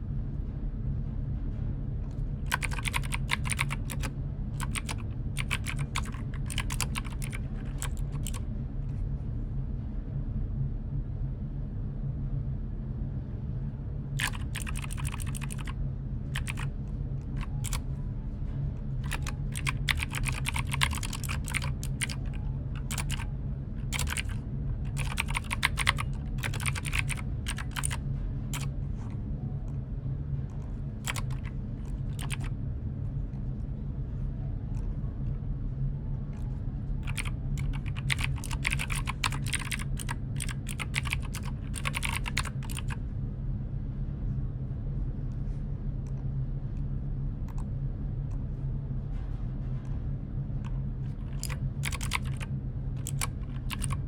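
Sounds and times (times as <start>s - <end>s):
steady low hum: 0.0s - 54.0s
computer keyboard typing: 2.5s - 8.4s, 14.2s - 17.9s, 19.0s - 28.0s, 28.6s - 28.8s, 31.0s - 32.5s, 37.0s - 43.0s, 50.7s - 54.0s.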